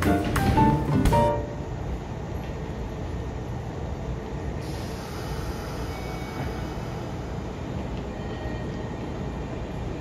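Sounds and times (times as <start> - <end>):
electric trains humming: 0.0 - 10.0.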